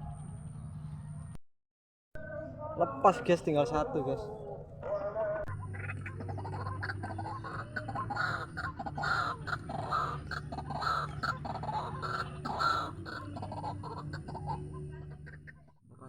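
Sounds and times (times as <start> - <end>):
waterhen croaking calls: 5.6 - 15.6.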